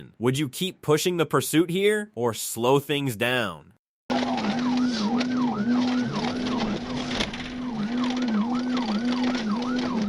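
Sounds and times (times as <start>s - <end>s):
police siren yelp: 4.1s - 10.0s
vehicle road noise: 4.1s - 10.0s.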